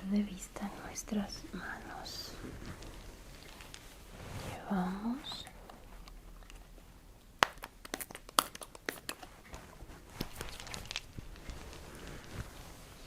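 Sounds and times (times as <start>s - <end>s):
quiet rustling: 0.0s - 7.0s, 9.2s - 13.0s
material crackling and clicking: 2.6s - 4.0s, 5.4s - 13.0s.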